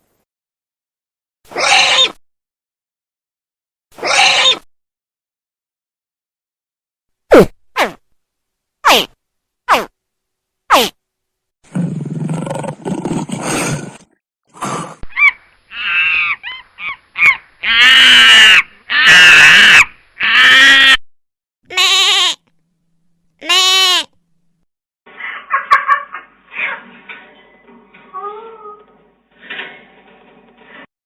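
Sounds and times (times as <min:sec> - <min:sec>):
animal calls: 0:01.5 - 0:02.1, 0:04.0 - 0:04.6, 0:14.6 - 0:21.0.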